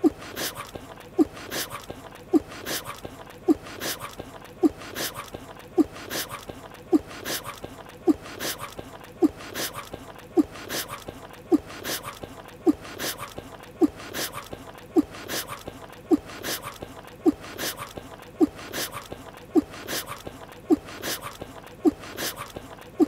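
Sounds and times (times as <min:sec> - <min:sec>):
cartoon chewing: 0:00.0 - 0:23.0.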